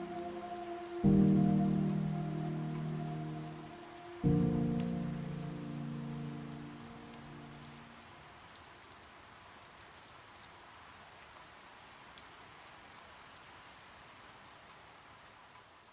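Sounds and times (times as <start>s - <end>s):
low held music chord: 0.0s - 7.9s
steady rain falling: 0.0s - 15.9s.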